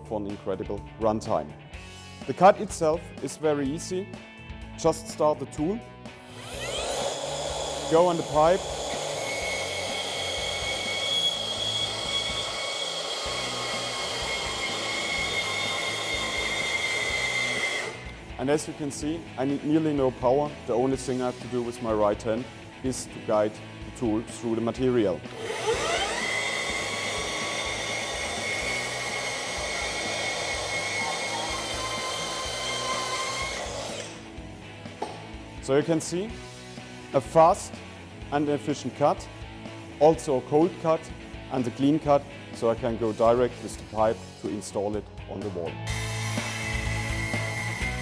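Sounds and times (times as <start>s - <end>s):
band saw cutting metal pipe: 6.2s - 20.0s, 23.3s - 34.4s, 45.9s - 48.0s.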